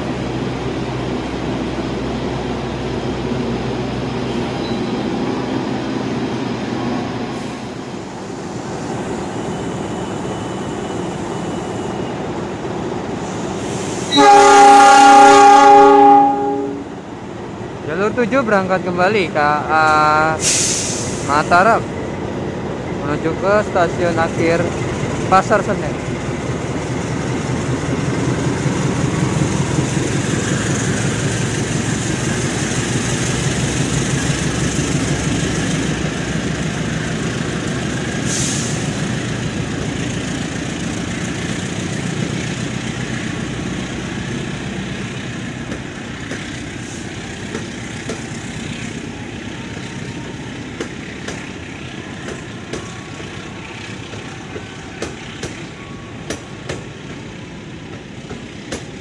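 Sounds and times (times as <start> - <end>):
diesel locomotive engine: 0.0 - 59.0
brief sharp hiss: 20.4 - 21.3.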